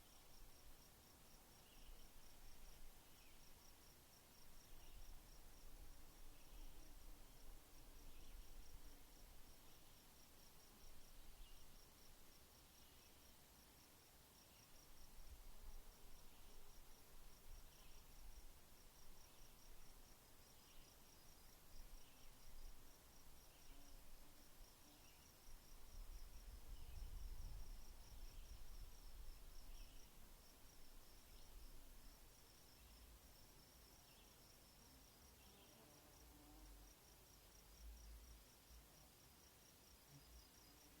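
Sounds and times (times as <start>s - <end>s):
faint insect chirping: 0.0s - 41.0s.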